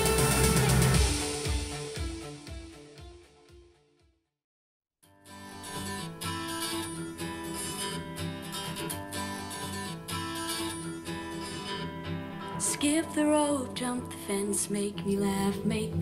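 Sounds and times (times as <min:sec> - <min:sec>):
strummed acoustic guitar music: 0:05.1 - 0:16.0.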